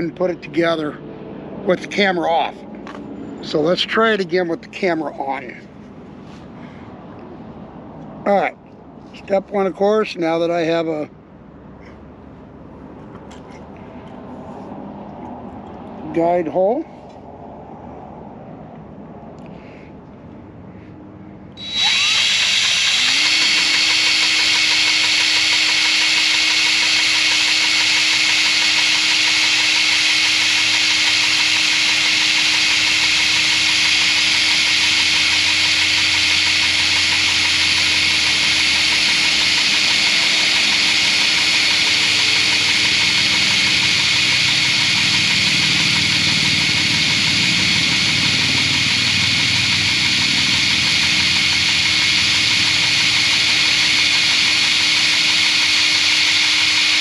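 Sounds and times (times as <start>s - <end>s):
power drill drilling metal: 21.6s - 57.0s.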